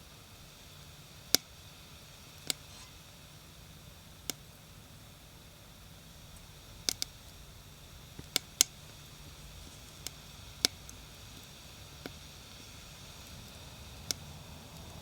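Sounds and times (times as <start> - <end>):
campfire crackling and popping: 6.2 - 15.0.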